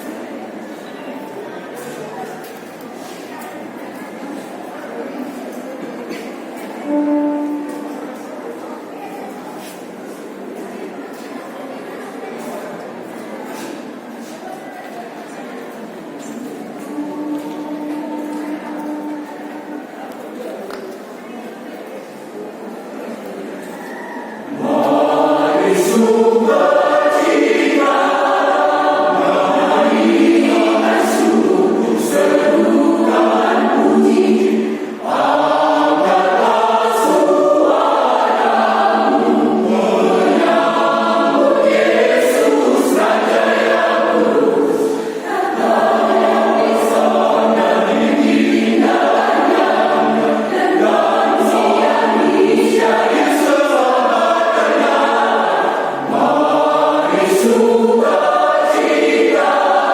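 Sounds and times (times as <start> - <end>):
choir singing a cappella: 0.0 - 0.7, 6.7 - 8.6, 16.2 - 20.6, 24.2 - 59.9.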